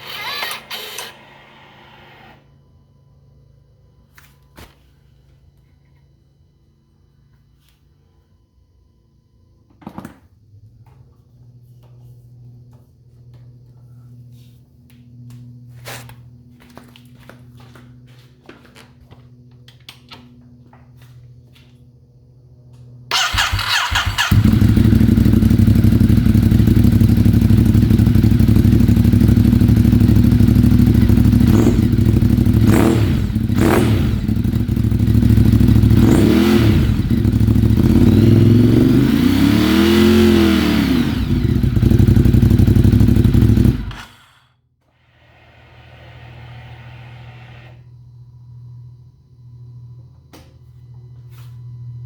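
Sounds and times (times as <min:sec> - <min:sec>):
motorcycle starter cranking: 0:00.0 - 0:01.3, 0:23.1 - 0:35.6
motorcycle engine idling: 0:23.1 - 0:44.2.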